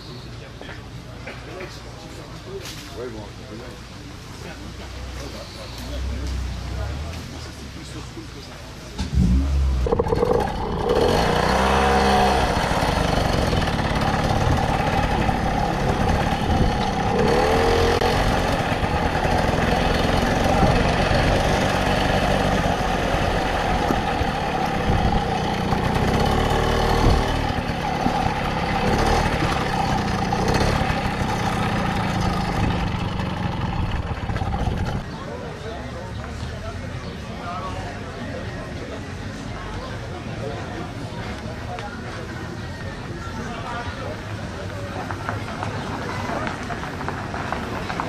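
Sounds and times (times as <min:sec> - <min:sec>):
moped engine running: 0:09.0 - 0:35.5.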